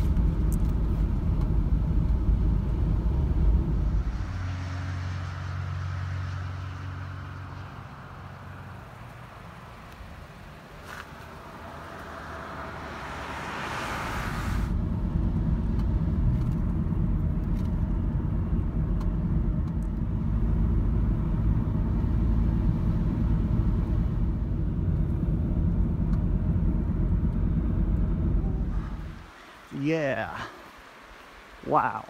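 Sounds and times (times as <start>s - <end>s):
van road and engine rumble: 0.0s - 30.4s
hiss: 13.9s - 14.7s.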